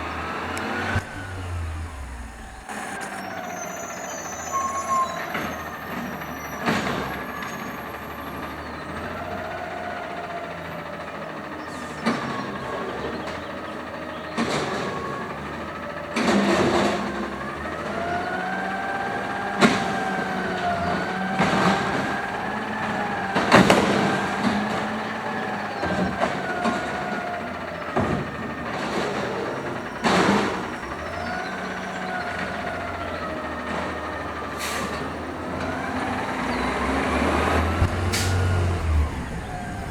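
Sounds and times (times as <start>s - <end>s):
hydraulic whine of garbage truck: 0.0s - 39.9s.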